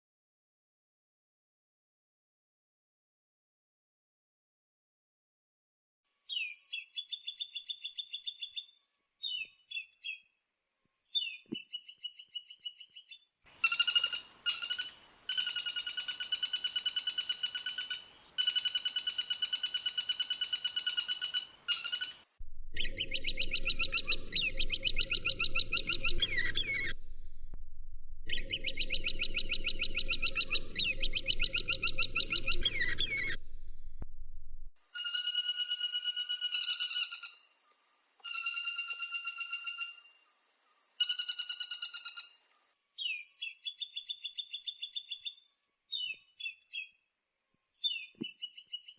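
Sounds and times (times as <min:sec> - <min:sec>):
woodpecker rattling trills: 0:13.6 - 0:27.4, 0:28.2 - 0:34.0
low hum: 0:22.4 - 0:34.8.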